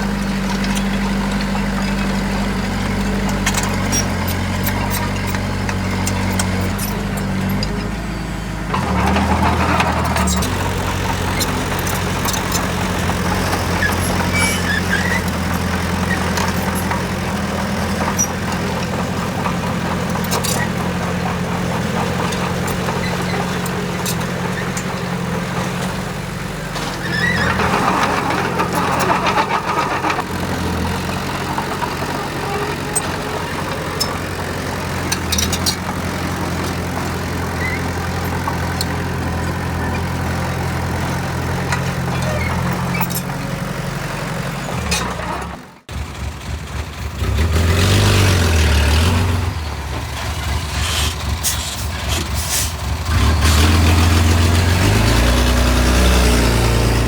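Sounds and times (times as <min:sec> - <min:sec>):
heavy machine engine running: 0:00.0 - 0:57.0
metal clanks: 0:08.7 - 0:26.0, 0:26.7 - 0:43.4.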